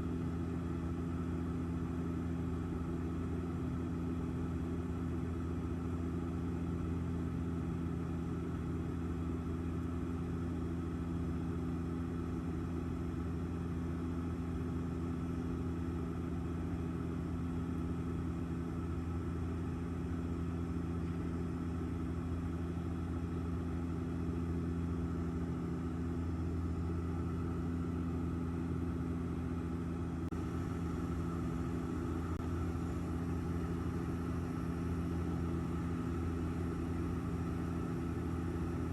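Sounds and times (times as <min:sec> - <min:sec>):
constant low hum: 0:00.0 - 0:38.9
airliner engines droning: 0:18.2 - 0:38.9.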